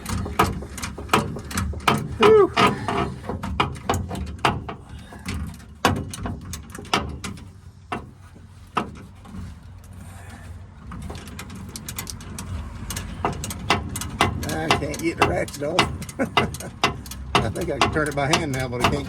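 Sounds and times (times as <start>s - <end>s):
ratchet wrench metal clicks: 11.1s - 19.0s.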